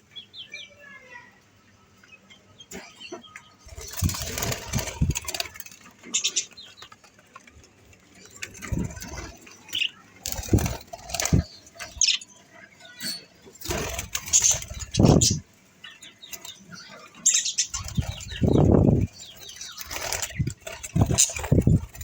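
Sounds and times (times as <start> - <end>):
budgies flapping wings: 3.6 - 12.3, 13.4 - 22.0.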